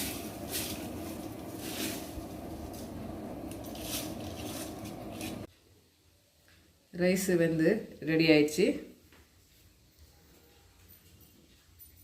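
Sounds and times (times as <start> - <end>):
stirring scraping swishes: 0.0 - 5.5
water boiling and bubbling: 0.0 - 5.5.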